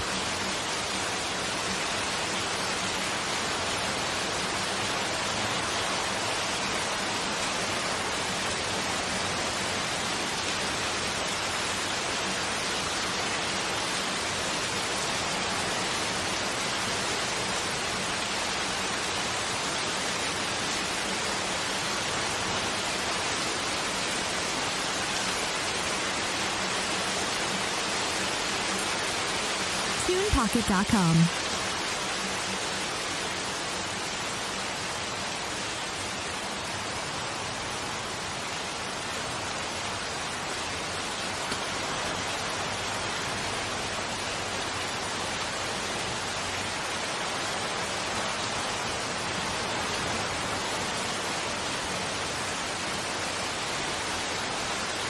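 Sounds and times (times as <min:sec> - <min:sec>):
rain on vegetation: 0:00.0 - 0:55.0.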